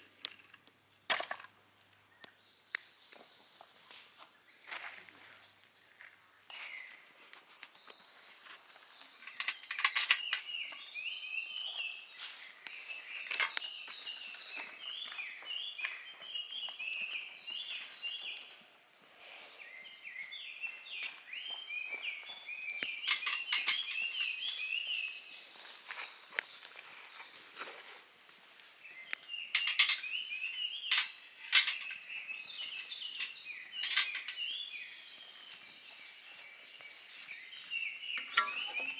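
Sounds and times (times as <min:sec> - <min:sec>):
songbird chirping: 0:01.8 - 0:38.9.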